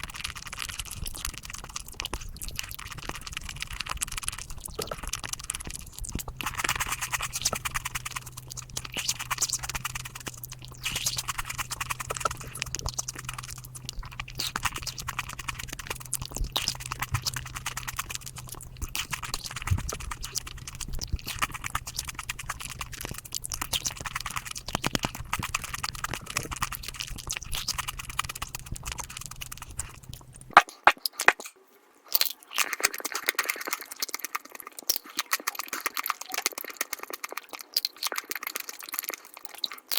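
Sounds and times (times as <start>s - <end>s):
steady low hum: 0.0s - 30.9s
crunching and chewing: 0.0s - 39.9s.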